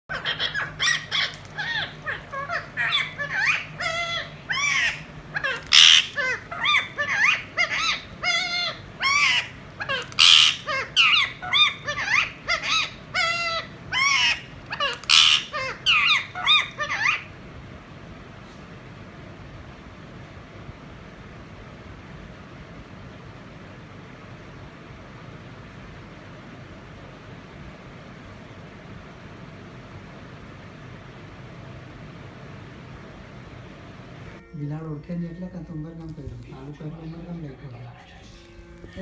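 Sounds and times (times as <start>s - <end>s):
parrot squawking: 0.1s - 17.4s.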